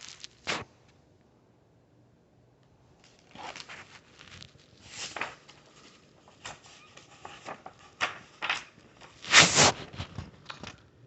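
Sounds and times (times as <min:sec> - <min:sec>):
book pages rustling: 0:00.0 - 0:00.7, 0:03.0 - 0:10.8.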